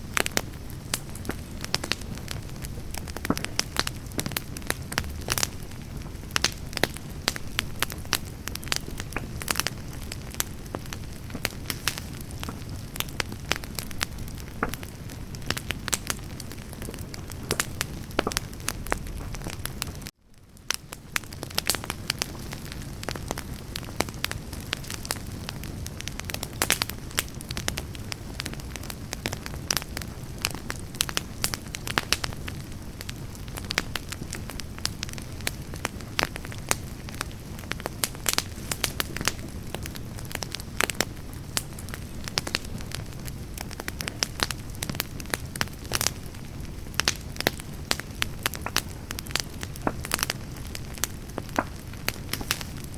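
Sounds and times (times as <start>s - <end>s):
campfire crackling and popping: 0.0s - 52.9s.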